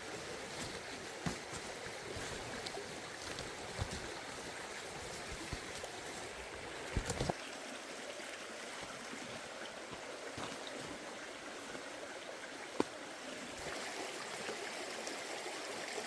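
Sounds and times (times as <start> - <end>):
stream flowing: 0.0 - 16.0.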